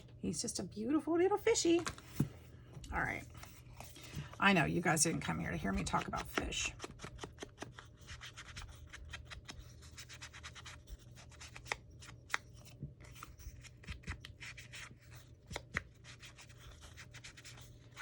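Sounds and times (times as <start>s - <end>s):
paper rubbing and scratching: 5.5s - 18.0s.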